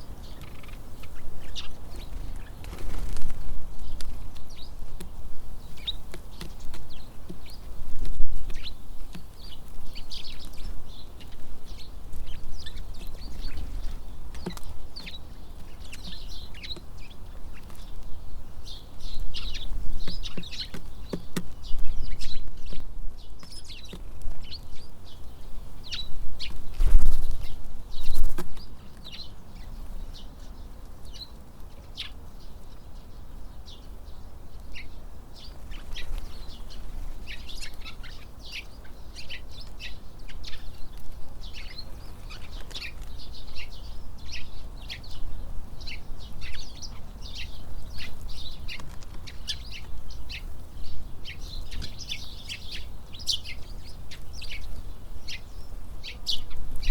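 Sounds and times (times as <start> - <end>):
birds chirping: 0.0 - 56.9
wind buffeting microphone: 25.5 - 28.6.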